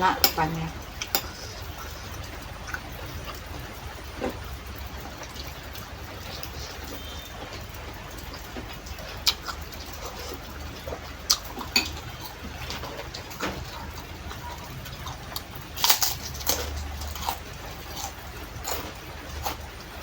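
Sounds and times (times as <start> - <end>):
chewing: 6.1 - 7.6, 8.2 - 20.0.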